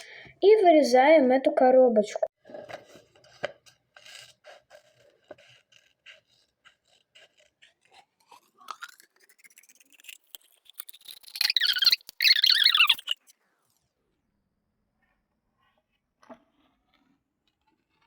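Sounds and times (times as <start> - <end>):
paper rustling and scraping: 2.5 - 8.5
scissors snipping paper: 2.8 - 13.3.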